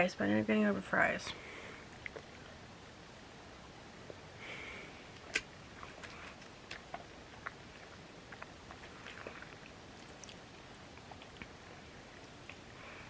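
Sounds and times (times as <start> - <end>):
soft chewing: 1.8 - 2.6, 4.0 - 13.0.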